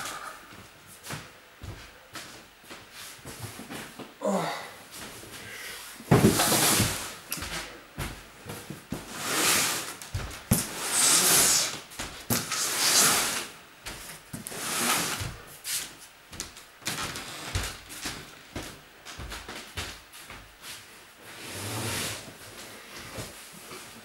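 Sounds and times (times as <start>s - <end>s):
rustling and scraping objects: 4.8s - 24.0s.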